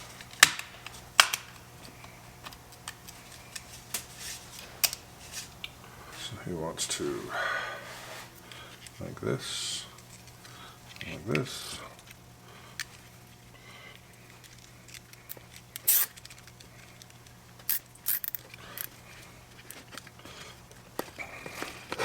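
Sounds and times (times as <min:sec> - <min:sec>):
steady low hum: 0:00.0 - 0:22.0
small clicks and scrapes: 0:14.0 - 0:22.0.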